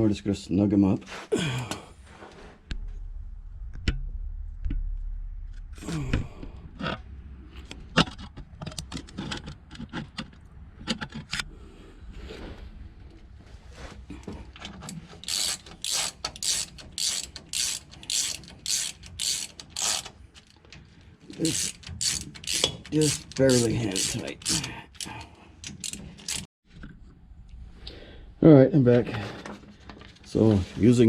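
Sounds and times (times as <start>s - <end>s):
metal tools clicking and scraping: 14.6s - 26.5s
ratchet wrench ratcheting: 15.1s - 20.6s, 21.3s - 26.5s.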